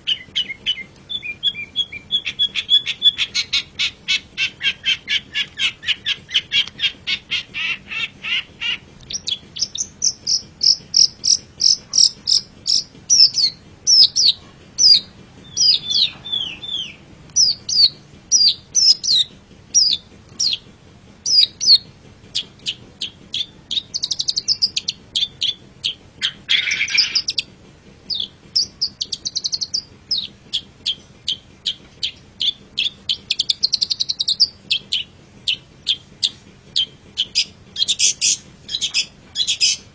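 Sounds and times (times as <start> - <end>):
bird singing chips and whistles: 0.0 - 20.6, 21.2 - 21.8, 22.6 - 27.5, 28.1 - 39.8
harsh scratchy bird call: 0.1 - 20.6, 22.4 - 27.5.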